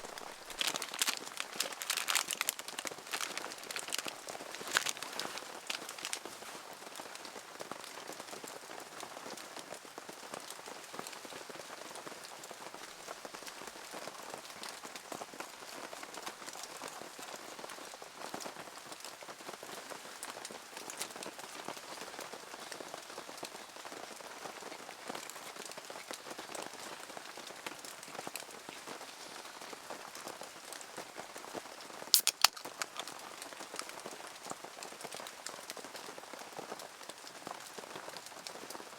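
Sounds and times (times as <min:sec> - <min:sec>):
steady rain falling: 0:00.0 - 0:32.1, 0:32.8 - 0:38.9
sharp clicks: 0:32.2 - 0:33.1.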